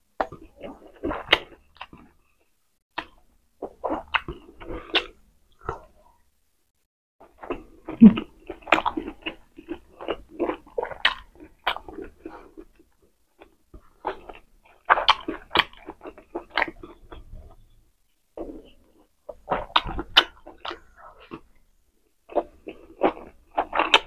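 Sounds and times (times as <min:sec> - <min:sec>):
chewing mouth clicks and smacks: 0:07.4 - 0:17.7, 0:19.3 - 0:21.6, 0:22.3 - 0:24.0.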